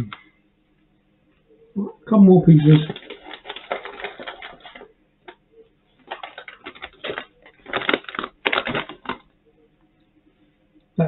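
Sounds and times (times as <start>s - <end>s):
pork rind crunching when chewed: 2.6s - 5.4s, 6.0s - 9.3s.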